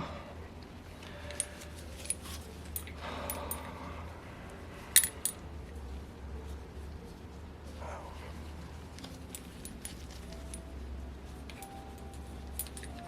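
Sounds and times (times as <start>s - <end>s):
low steady hum: 0.0s - 13.0s
metal parts clinking: 1.3s - 3.7s, 4.9s - 5.4s, 9.0s - 10.7s, 11.4s - 13.0s.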